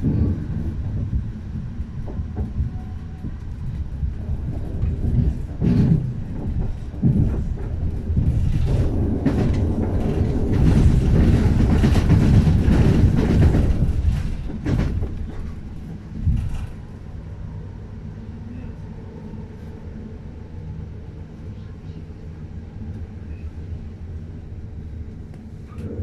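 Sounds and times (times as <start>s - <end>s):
train wheels rumbling on rails: 0.0s - 26.0s
wheels clacking over track: 2.0s - 16.8s.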